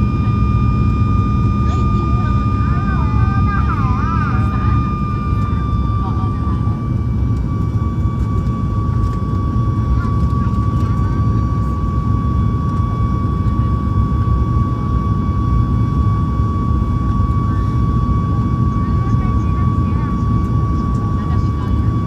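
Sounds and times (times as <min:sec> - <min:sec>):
jet engines in cabin: 0:00.0 - 0:22.0.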